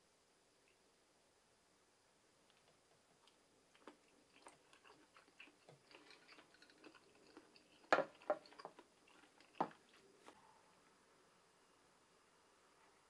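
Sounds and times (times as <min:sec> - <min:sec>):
soft wet chewing: 0:02.4 - 0:10.6.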